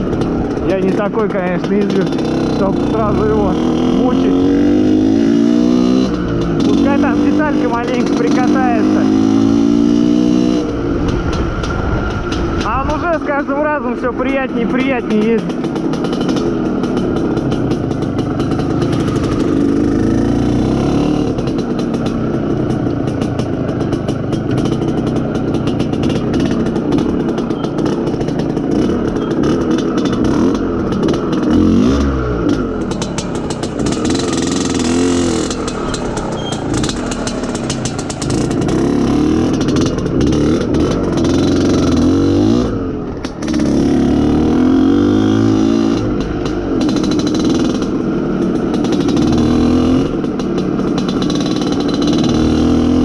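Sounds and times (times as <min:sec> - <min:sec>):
motorcycle two-stroke engine running: 0:00.0 - 0:53.0.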